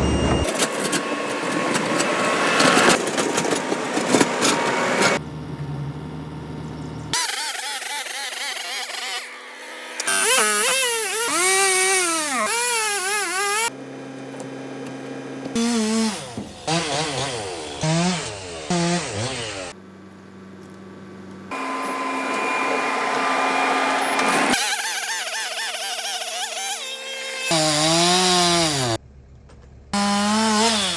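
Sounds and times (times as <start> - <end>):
chainsaw cutting wood: 7.2 - 13.8, 15.5 - 19.8, 21.5 - 29.0, 30.0 - 30.9.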